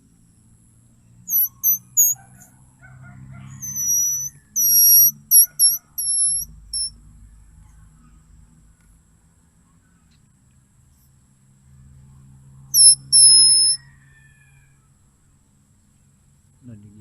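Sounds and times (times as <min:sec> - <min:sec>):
squeaky whistle on a flower: 0:01.2 - 0:02.6, 0:03.4 - 0:07.0, 0:12.7 - 0:14.6.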